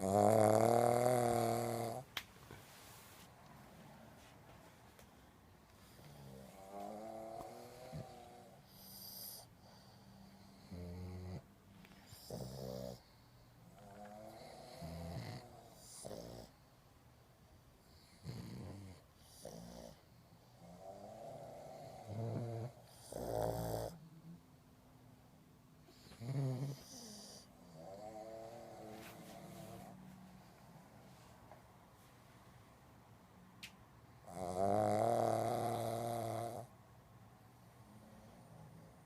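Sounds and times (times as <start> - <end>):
dog snoring and snorting: 0.0 - 2.1, 5.8 - 16.6, 17.9 - 24.4, 25.8 - 30.0, 34.2 - 36.8, 37.9 - 39.0.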